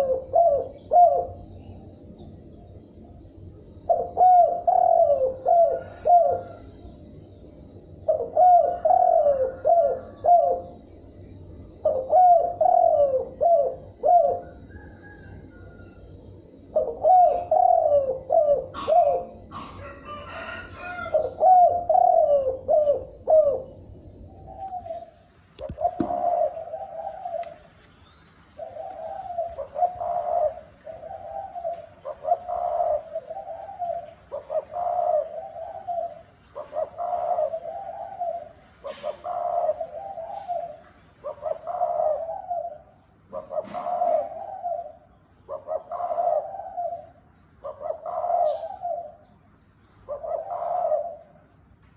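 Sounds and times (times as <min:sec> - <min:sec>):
dove cooing: 0:00.0 - 0:02.0, 0:03.1 - 0:49.4, 0:50.0 - 0:51.6
single knock: 0:25.6 - 0:26.2.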